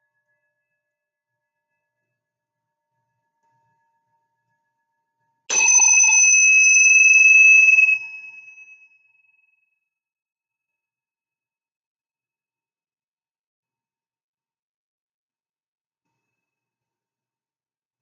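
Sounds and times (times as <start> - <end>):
singing bowl ringing: 5.5 - 8.7.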